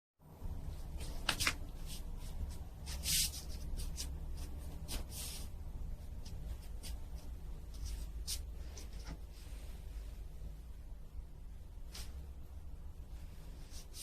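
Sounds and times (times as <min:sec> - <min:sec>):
low steady hum: 0:00.2 - 0:14.0
scratching and rustling: 0:00.8 - 0:10.3
hissing scrape: 0:04.9 - 0:05.6.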